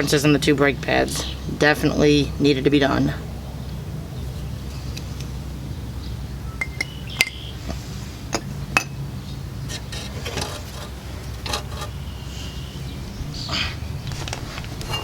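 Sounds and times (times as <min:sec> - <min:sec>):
metal parts clinking and scraping: 0:09.7 - 0:12.0.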